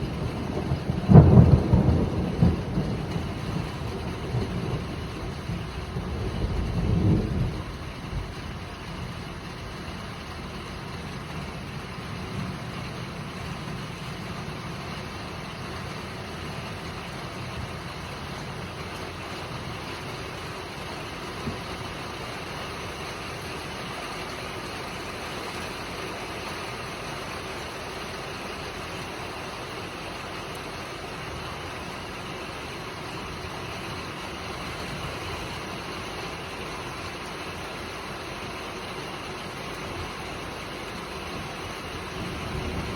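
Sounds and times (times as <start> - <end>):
thunder rumbling: 0.0 - 14.8, 40.0 - 42.9
heavy rain hissing: 0.0 - 42.9.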